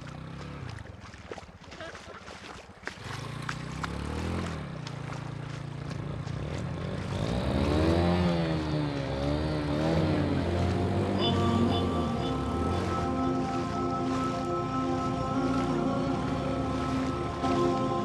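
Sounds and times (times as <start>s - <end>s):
small engine running: 2.8s - 18.0s.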